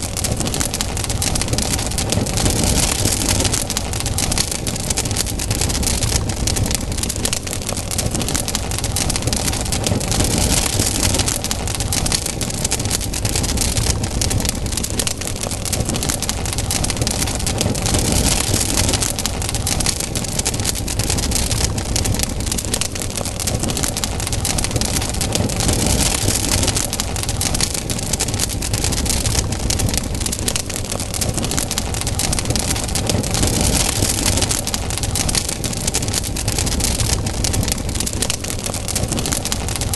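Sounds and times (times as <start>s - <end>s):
campfire crackling and popping: 0.0s - 39.9s
low rumble: 28.2s - 39.9s.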